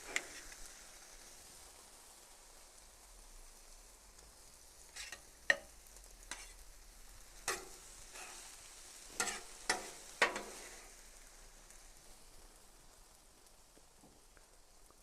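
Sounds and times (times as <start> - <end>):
metal spatula scraping griddle: 0.0 - 0.6, 4.9 - 5.7, 6.3 - 6.6, 7.4 - 11.0
faint sizzle: 0.0 - 15.0.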